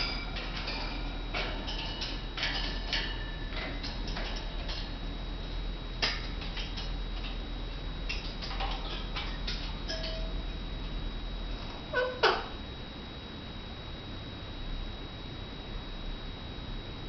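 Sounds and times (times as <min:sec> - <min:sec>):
parakeets clicking and tapping: 0:00.0 - 0:05.1, 0:06.0 - 0:07.5, 0:08.1 - 0:10.4, 0:11.9 - 0:12.5.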